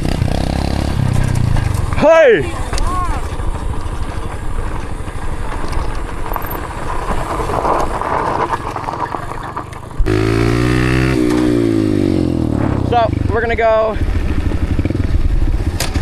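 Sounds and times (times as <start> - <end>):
wind noise on microphone: 0.0 - 13.3
dirt bike engine: 0.0 - 16.0.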